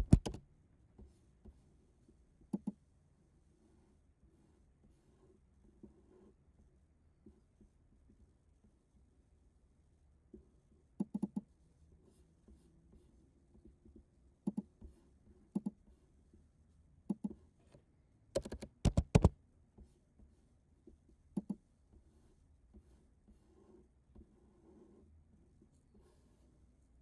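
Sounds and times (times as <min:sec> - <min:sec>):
computer mouse or keyboard clicks: 0:00.0 - 0:00.4, 0:18.4 - 0:19.3.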